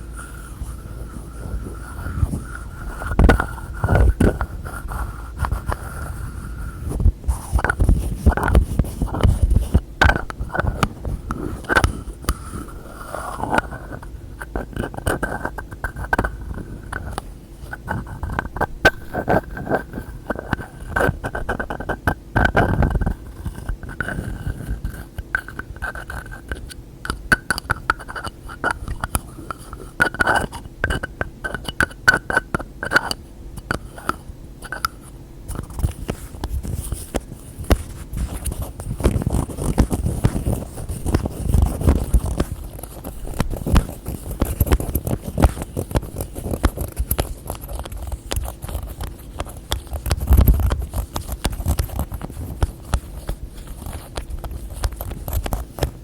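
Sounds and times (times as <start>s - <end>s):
rubbing and scraping: 0.0s - 56.0s
tapping on containers: 7.6s - 11.0s, 25.2s - 56.0s.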